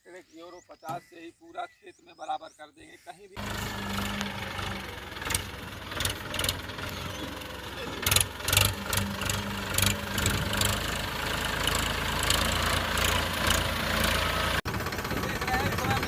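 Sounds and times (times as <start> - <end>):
tractor diesel engine idling: 3.4 - 16.0.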